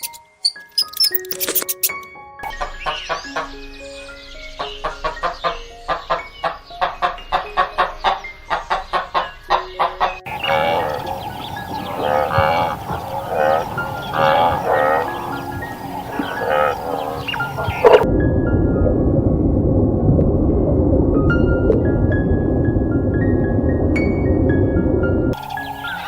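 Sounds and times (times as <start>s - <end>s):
wavering animal cries: 10.3s - 18.0s.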